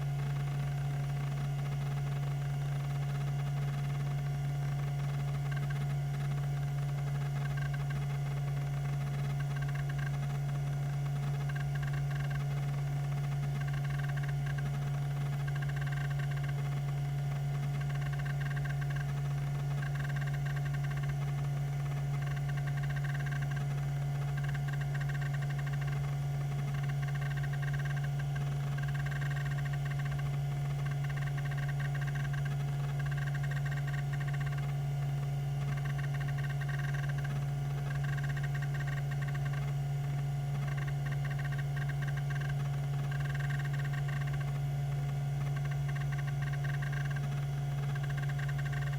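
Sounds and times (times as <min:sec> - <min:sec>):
hard drive spindle hum: 0:00.0 - 0:48.9
hard drive head seek noise: 0:26.6 - 0:34.7, 0:35.6 - 0:48.9.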